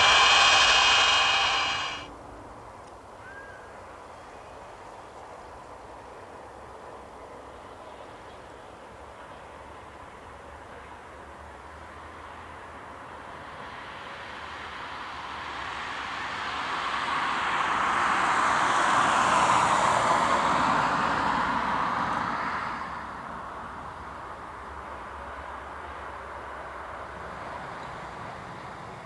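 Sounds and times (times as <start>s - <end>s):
jet aircraft rumble passing: 0.0s - 2.1s.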